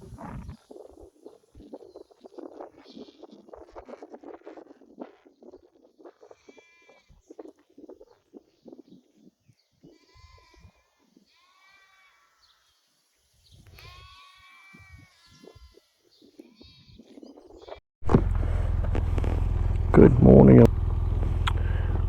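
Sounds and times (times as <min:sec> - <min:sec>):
distant sheep bleating: 0:09.8 - 0:12.6, 0:13.7 - 0:17.2.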